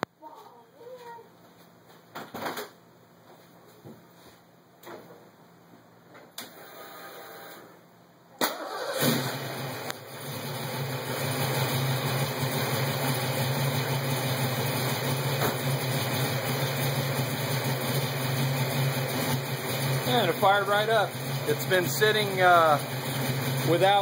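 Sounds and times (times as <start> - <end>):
engine cranking: 8.5 - 9.4
car engine idling: 8.6 - 24.0.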